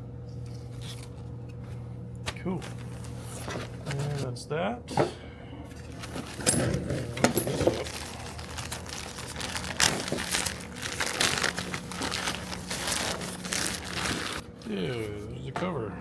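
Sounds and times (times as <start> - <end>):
packaging crinkling and rustling: 2.3 - 4.2, 5.9 - 15.2.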